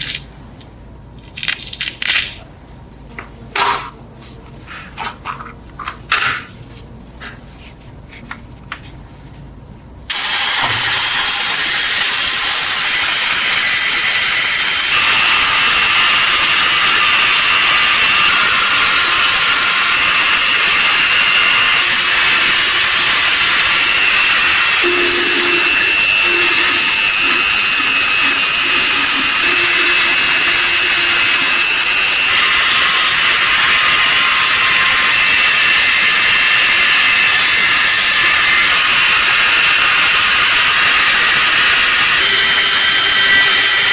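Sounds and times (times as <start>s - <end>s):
power tool grinding: 10.1s - 43.9s.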